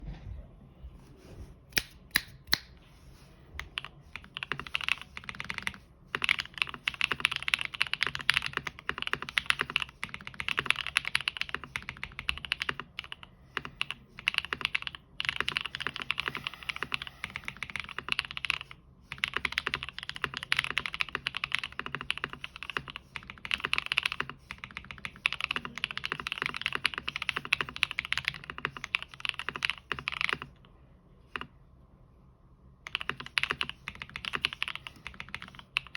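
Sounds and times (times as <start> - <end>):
typing on mechanical keyboard: 3.6 - 30.6, 32.9 - 35.9.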